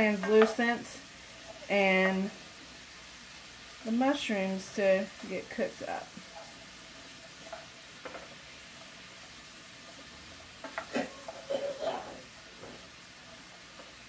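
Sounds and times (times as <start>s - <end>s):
onions sizzling in oil: 0.0s - 14.0s
wooden spoon scraping a pan: 4.7s - 8.9s, 9.7s - 14.0s.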